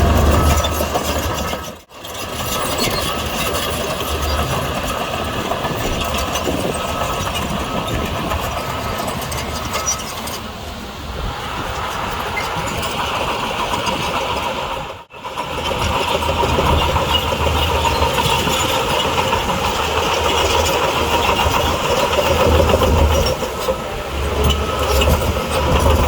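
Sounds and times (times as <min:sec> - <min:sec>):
heavy diesel machinery running: 0:00.0 - 0:26.0.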